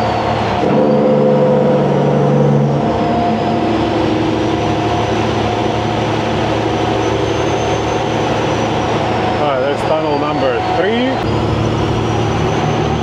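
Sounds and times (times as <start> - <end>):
truck diesel engine running: 0.0 - 13.0
turbo whistle: 0.0 - 13.0
steady horn-like tone: 0.6 - 6.3.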